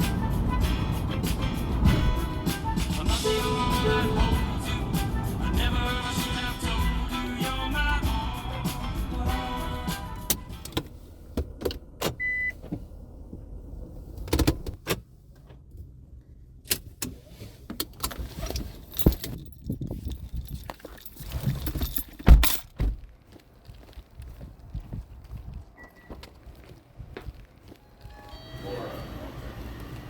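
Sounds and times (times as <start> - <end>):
keys jangling: 18.5 - 22.8
short high beep: 28.1 - 29.3.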